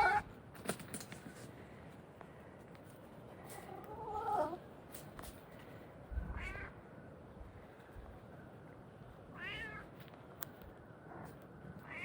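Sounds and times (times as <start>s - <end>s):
cat meowing: 0.0s - 0.3s, 9.4s - 9.9s.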